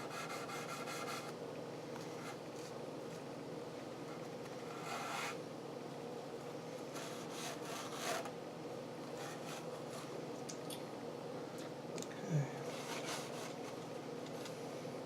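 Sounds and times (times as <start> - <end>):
scouring pad rubbing wood: 0.0 - 1.3, 4.6 - 5.4, 6.9 - 8.3
steady low hum: 0.0 - 15.0.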